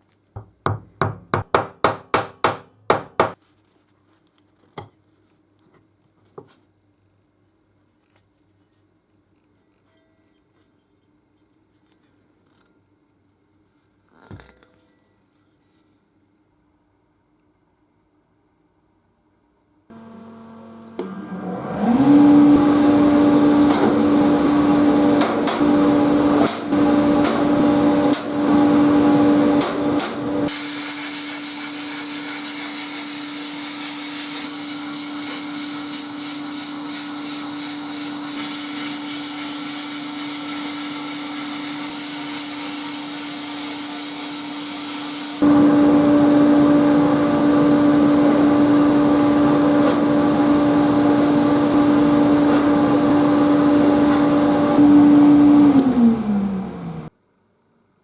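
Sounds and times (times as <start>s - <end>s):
sharp knocks: 0.4s - 3.4s
machine motor humming: 19.9s - 30.5s, 45.4s - 57.1s.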